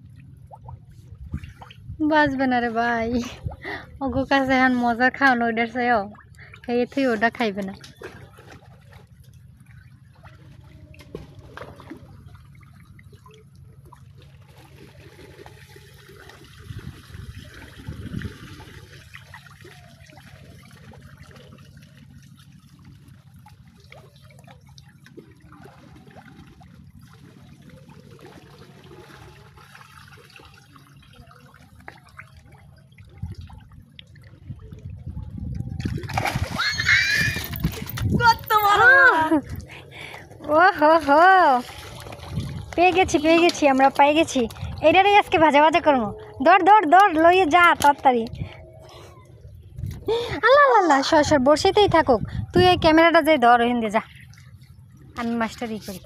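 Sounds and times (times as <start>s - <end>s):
pond water trickling and lapping: 0.0s - 56.0s
water splashes: 0.0s - 56.0s.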